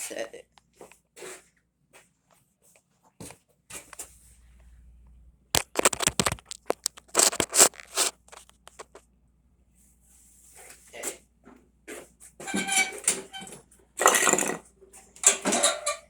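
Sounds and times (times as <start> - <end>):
camera handling rubbing: 5.6 - 8.9
sharp knocks and scrapes: 5.6 - 9.0.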